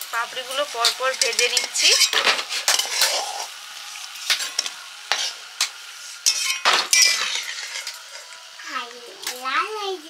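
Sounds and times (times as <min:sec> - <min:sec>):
crisps frying in hot oil: 0:00.0 - 0:10.0
metal spatula scraping a pan: 0:00.5 - 0:08.4.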